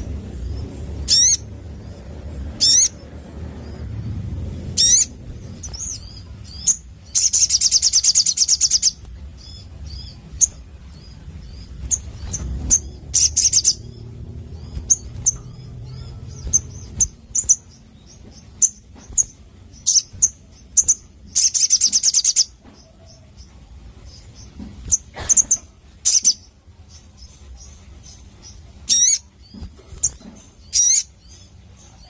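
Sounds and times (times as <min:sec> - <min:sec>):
low rumble: 0:00.0 - 0:07.5, 0:08.8 - 0:19.8
bird chirping sharply: 0:00.4 - 0:22.6.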